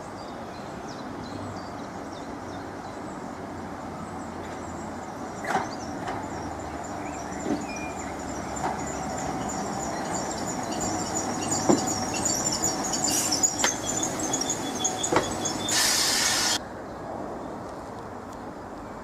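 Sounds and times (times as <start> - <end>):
train rumbling: 1.0 - 17.7
wheel squeal: 5.4 - 16.6
loud hiss: 13.1 - 16.6.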